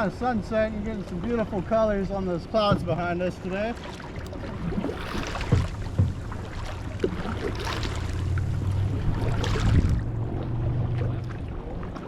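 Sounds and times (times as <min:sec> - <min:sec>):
low steady hum: 0:00.0 - 0:12.0
paddle knocks and splashes: 0:02.6 - 0:12.0
wind on microphone: 0:04.4 - 0:12.0.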